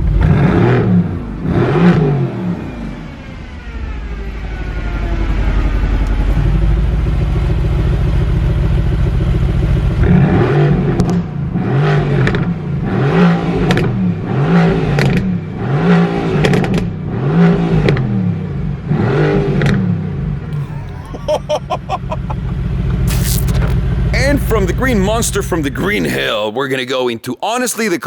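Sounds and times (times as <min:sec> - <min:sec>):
car engine idling and revving: 0:00.0 - 0:20.5.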